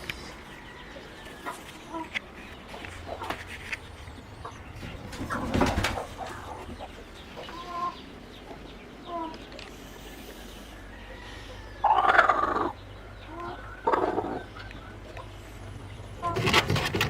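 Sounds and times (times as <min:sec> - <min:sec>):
chickens clucking: 0:00.0 - 0:17.0
rustling noise: 0:01.2 - 0:06.5.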